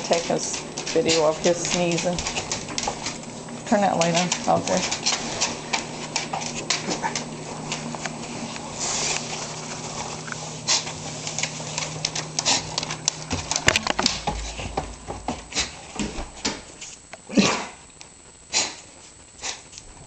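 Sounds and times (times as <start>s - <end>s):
dog sneezing: 17.3s - 17.8s, 18.5s - 18.8s.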